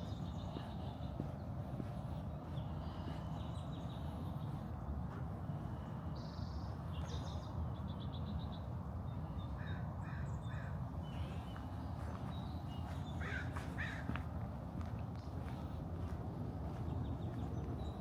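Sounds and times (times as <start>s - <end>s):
wild birds calling: 9.5s - 14.2s.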